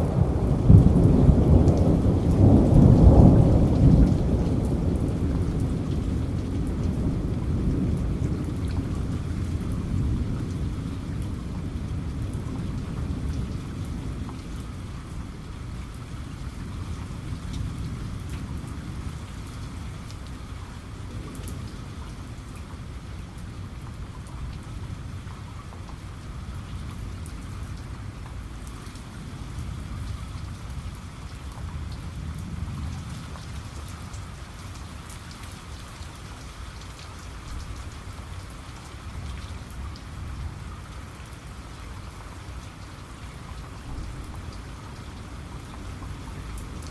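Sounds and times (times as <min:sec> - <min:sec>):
low rumble of thunder: 0:00.0 - 0:46.9
rain falling: 0:00.0 - 0:46.9
rain drop ticks: 0:10.4 - 0:15.2, 0:19.4 - 0:40.1, 0:40.9 - 0:46.9.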